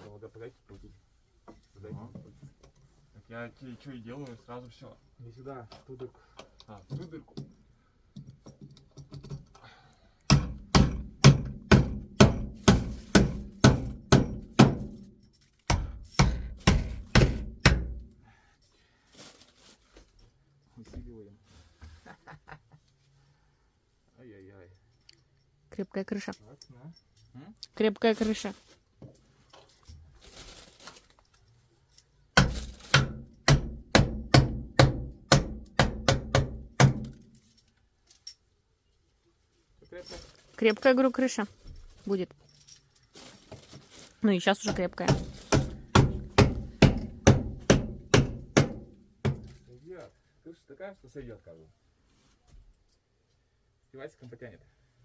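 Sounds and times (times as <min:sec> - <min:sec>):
hammer driving nail into wood: 0:10.3 - 0:15.1, 0:15.7 - 0:18.1, 0:32.4 - 0:37.2, 0:44.7 - 0:49.5.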